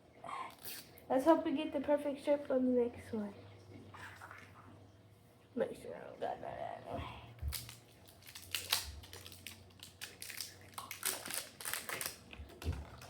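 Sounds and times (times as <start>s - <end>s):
plastic wrap crinkling: 7.4s - 13.0s.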